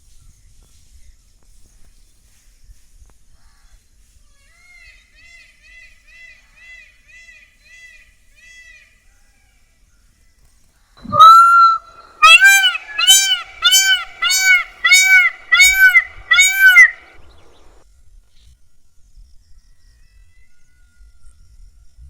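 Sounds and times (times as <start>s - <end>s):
peacock calling: 11.0s - 17.8s.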